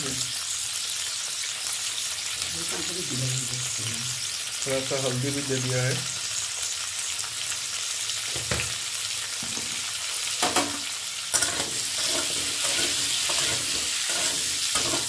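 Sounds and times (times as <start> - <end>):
vegetables sizzling in hot oil: 0.0 - 15.0
wooden spatula scraping pan: 11.4 - 15.0.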